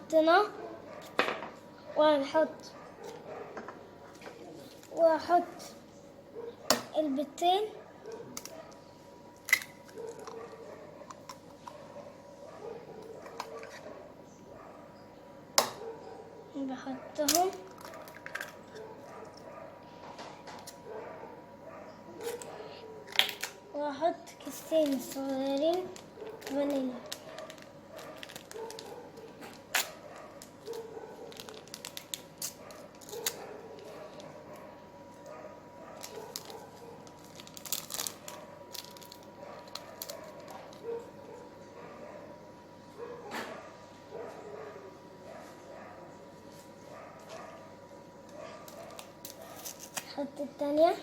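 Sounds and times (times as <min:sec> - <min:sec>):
sachets tearing and rustling: 0:24.5 - 0:35.2, 0:36.0 - 0:41.1, 0:48.6 - 0:50.2.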